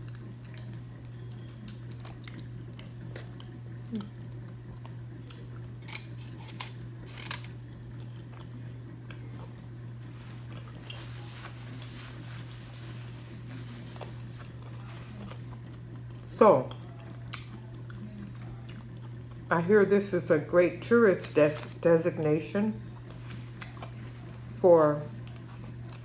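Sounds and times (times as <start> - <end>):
person chewing food: 0.0 - 19.5, 22.8 - 26.0
low hum: 0.0 - 26.0.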